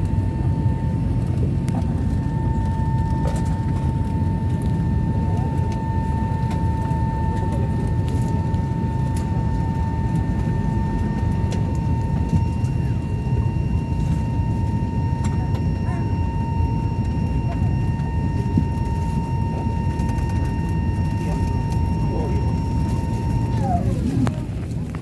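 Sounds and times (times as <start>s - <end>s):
constant high whine: 0.0s - 25.0s
turboprop cabin rumble: 0.0s - 25.0s.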